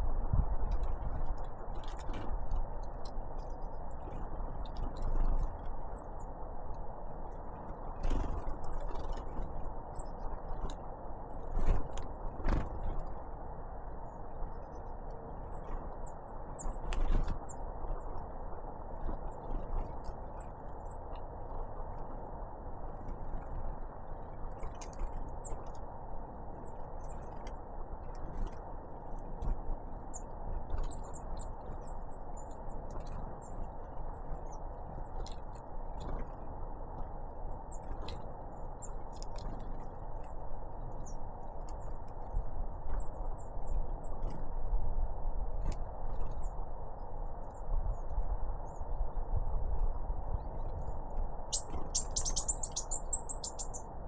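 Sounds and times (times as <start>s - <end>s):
bird chirp: 51.5s - 54.0s.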